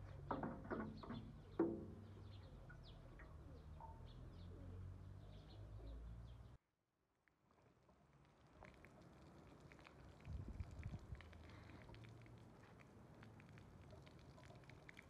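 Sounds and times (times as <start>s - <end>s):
faint birdsong: 0.0s - 6.6s.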